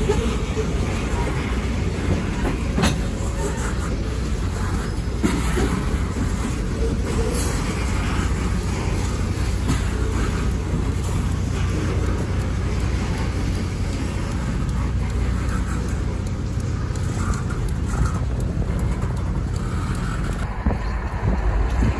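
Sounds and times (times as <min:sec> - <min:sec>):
freight train rumbling past: 0:00.0 - 0:21.9.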